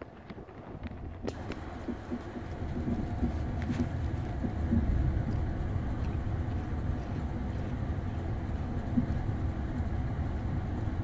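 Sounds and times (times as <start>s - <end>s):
train rumble from on board: 0.0s - 11.0s.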